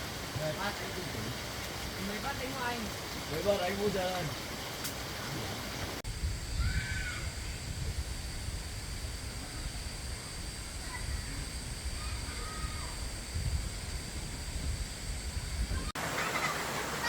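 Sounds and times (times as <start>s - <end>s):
wind buffeting microphone: 4.3s - 16.0s
high-pitched insect drone: 6.0s - 16.0s.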